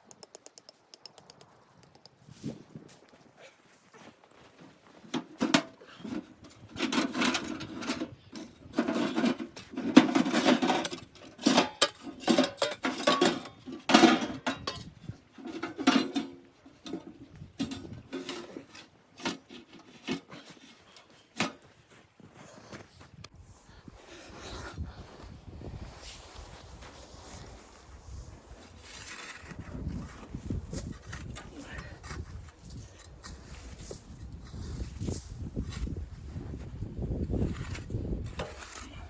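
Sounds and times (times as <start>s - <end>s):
pots and utensils clattering: 5.2s - 20.7s.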